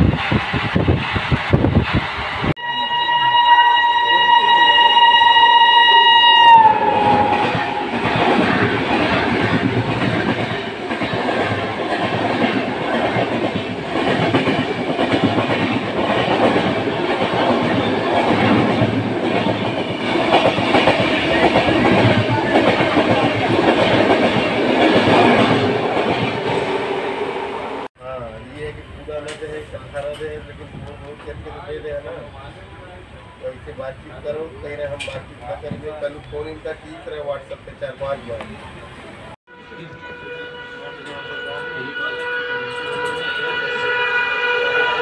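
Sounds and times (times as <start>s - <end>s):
train horn blast: 2.6s - 8.2s, 39.5s - 45.0s.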